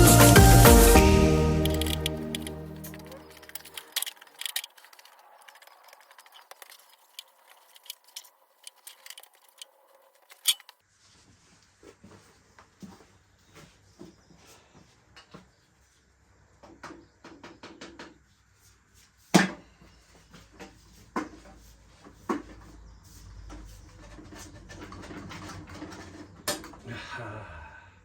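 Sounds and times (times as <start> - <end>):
scraping and rustling: 1.7 - 14.7, 18.2 - 26.7.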